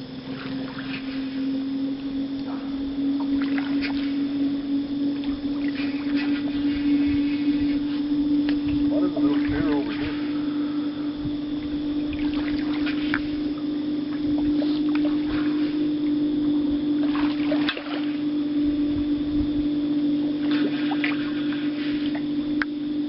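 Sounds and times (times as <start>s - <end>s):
light water splashes: 0.0s - 10.6s, 11.3s - 19.1s, 20.4s - 22.8s
boat motor hum: 0.0s - 23.0s.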